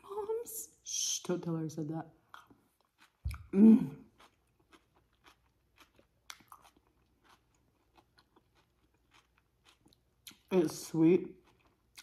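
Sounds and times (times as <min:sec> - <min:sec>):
person chewing coleslaw: 0:02.2 - 0:12.0
person humming mm: 0:03.3 - 0:04.1.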